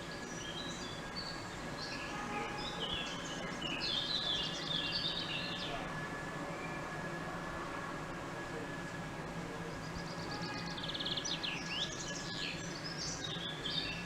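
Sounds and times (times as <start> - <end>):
outdoor background noise: 0.0 - 14.0
small birds chirping: 9.8 - 14.0.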